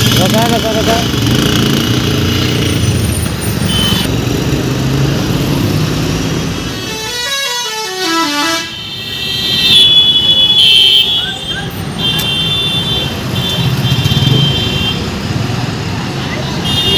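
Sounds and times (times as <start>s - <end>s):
engine and traffic noise: 0.0s - 16.9s
truck horns: 1.4s - 4.4s, 6.3s - 15.2s, 16.6s - 16.9s.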